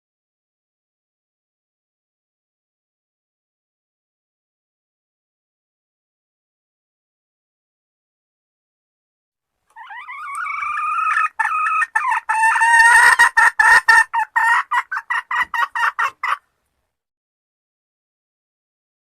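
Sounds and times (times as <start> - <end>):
hen clucking notes: 9.7 - 16.4
junglefowl hen calling: 9.7 - 16.5.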